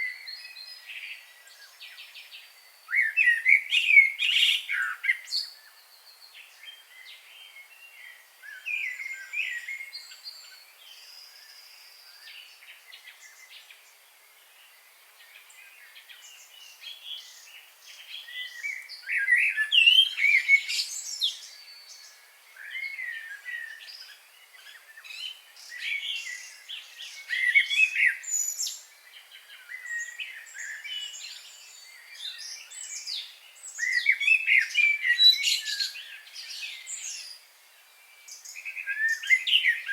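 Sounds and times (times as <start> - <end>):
wild birds chirping: 0.0 - 39.9.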